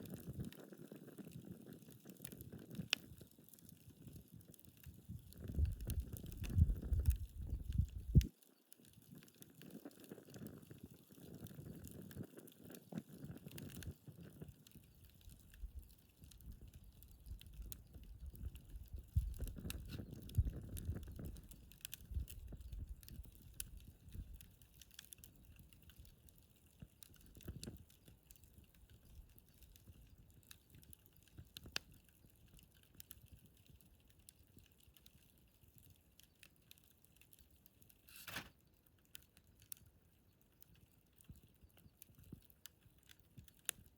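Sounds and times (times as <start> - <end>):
wood campfire crackling: 0.0 - 43.9.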